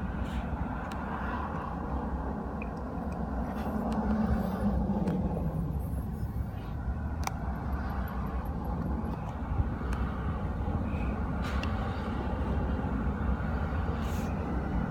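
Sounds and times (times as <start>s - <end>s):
car rumble: 0.0s - 14.9s
faint clicks: 7.2s - 7.4s.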